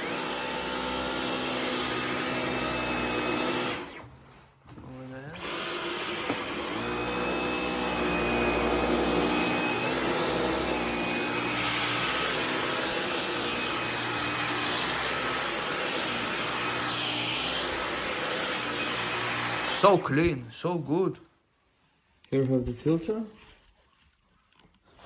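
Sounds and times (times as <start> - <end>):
cordless vacuum running: 0.0 - 4.1, 4.7 - 20.2.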